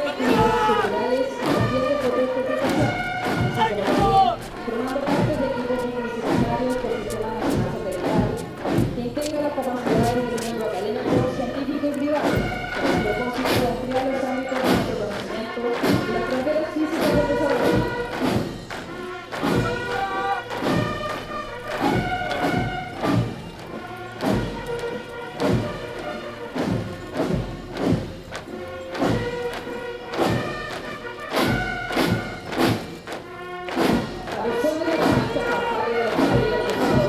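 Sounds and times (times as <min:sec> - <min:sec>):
military band playing a march: 0:00.0 - 0:37.0
bass drum beat: 0:02.6 - 0:14.0.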